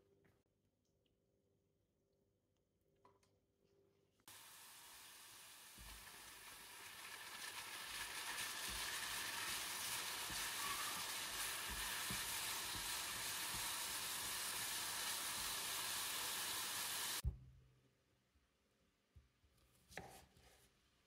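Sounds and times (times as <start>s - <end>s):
mushrooms sizzling in oil: 4.3s - 17.2s.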